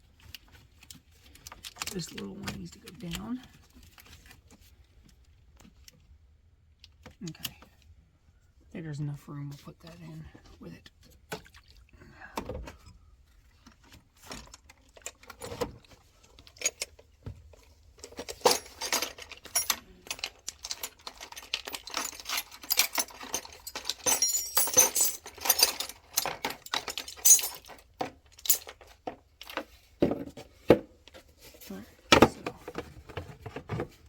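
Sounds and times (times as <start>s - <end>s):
metal tools clinking and rattling: 14.2s - 30.4s.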